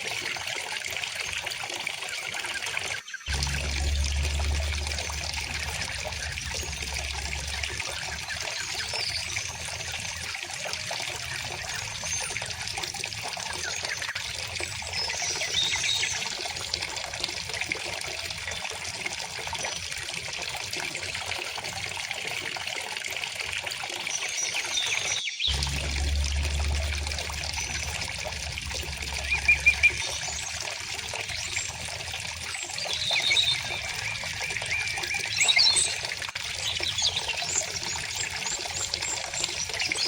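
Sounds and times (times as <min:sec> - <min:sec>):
low rumble: 0:03.3 - 0:10.0, 0:25.5 - 0:32.5.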